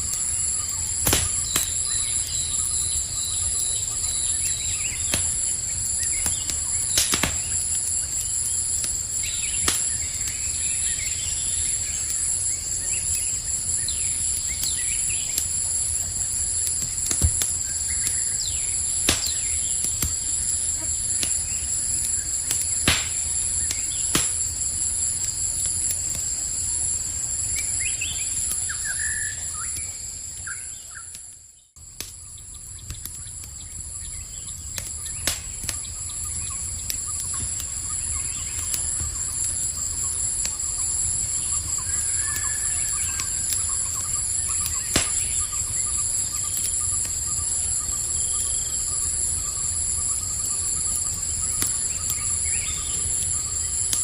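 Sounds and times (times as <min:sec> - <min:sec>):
campfire crackling: 0:00.0 - 0:54.0
insects chirping: 0:00.0 - 0:54.0.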